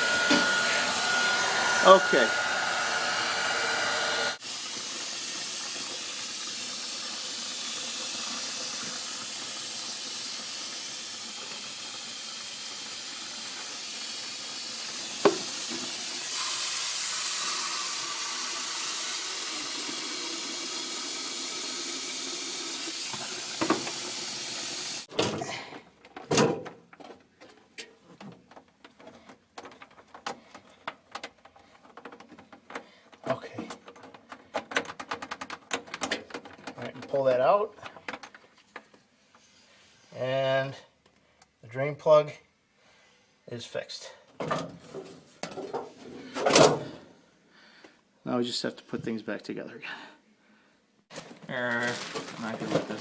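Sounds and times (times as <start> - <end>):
heat gun blowing: 0.0 - 25.1
knocks and clatters: 33.5 - 37.1.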